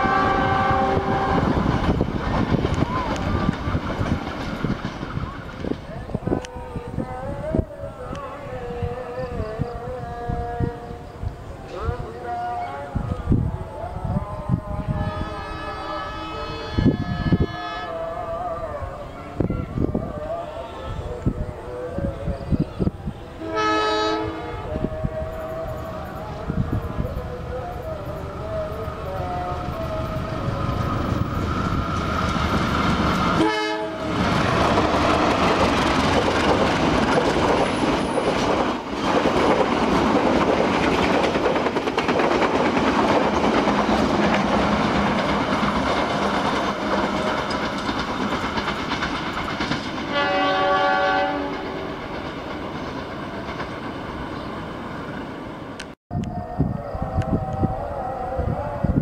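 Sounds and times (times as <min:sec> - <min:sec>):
train horn: 0:00.0 - 0:02.0, 0:14.2 - 0:22.3, 0:23.1 - 0:32.0, 0:33.1 - 0:35.6, 0:50.1 - 0:52.2
train wheels clattering: 0:00.0 - 0:05.9, 0:30.9 - 0:50.6.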